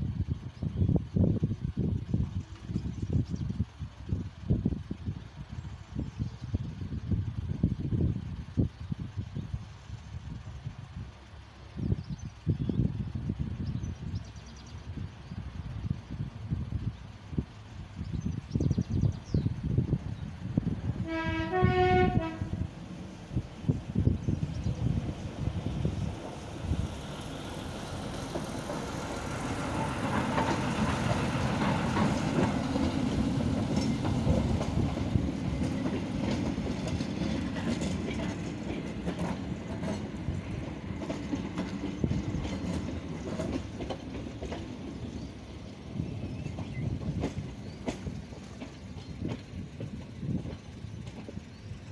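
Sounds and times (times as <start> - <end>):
train rumbling past: 0.0 - 51.9
wheels clicking over rail joints: 22.8 - 51.9.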